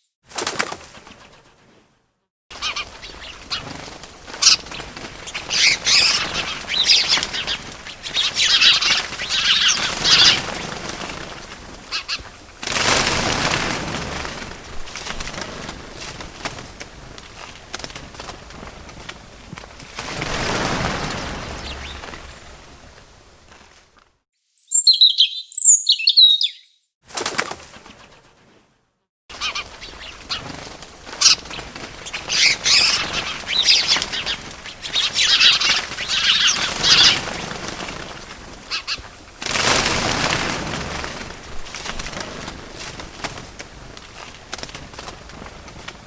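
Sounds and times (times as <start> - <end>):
bird wings flapping: 0.3 - 24.2, 27.1 - 28.7, 29.3 - 46.0
sharp high bird chirps: 24.4 - 26.9.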